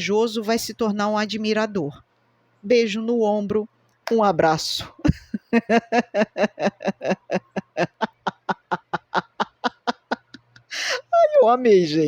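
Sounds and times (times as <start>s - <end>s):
woman laughing: 5.0s - 11.2s.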